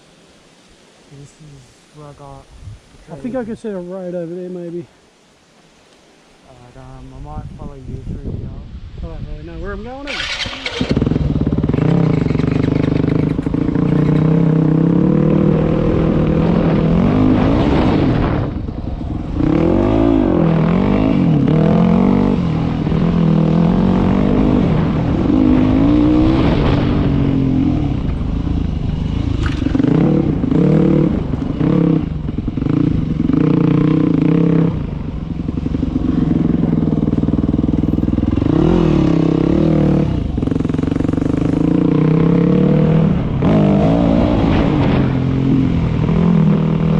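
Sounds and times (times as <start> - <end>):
dirt bike engine revving: 10.0 - 46.9.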